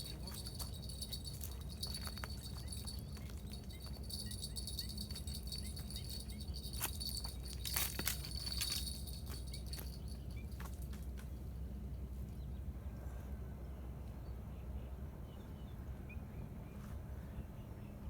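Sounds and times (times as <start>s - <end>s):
metallic jingling and clicks: 0.0s - 11.2s.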